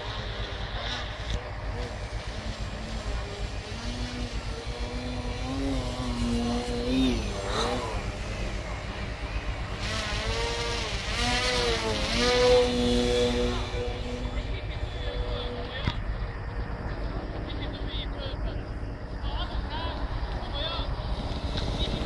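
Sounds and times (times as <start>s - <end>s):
model airplane motor whining: 0.0s - 16.0s.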